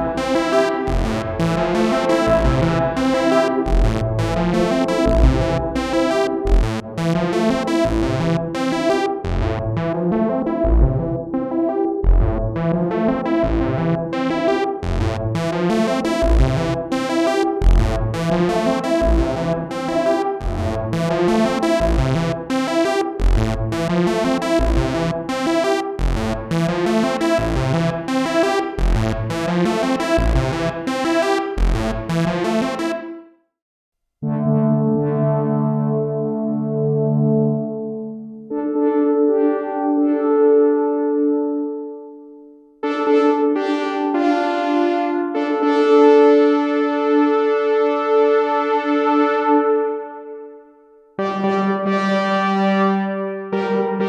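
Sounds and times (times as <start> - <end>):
pulsing bass: 0.0 - 33.0
synthesizer sequence with reverb: 0.0 - 33.3, 34.2 - 54.0.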